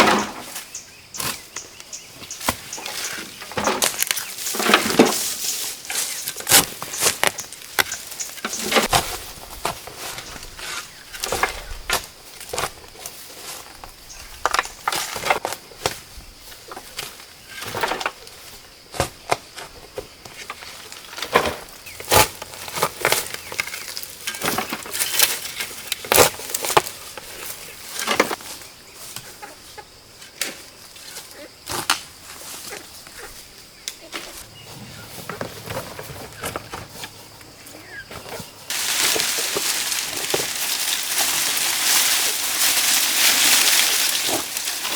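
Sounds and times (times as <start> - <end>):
chickens clucking: 32.5 - 43.0.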